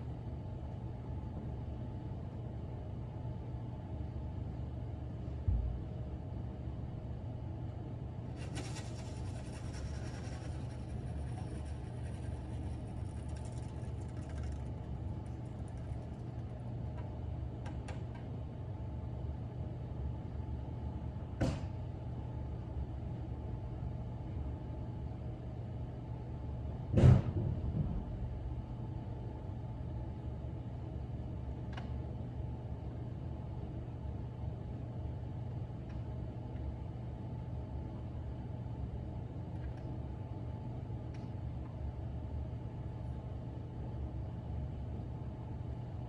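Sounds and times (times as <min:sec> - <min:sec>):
steady low rumble: 0:07.9 - 0:17.4.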